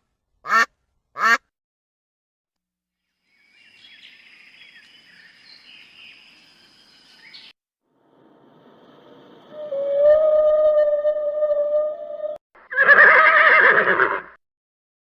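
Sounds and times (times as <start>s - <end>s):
bird chirps: 3.1s - 7.6s.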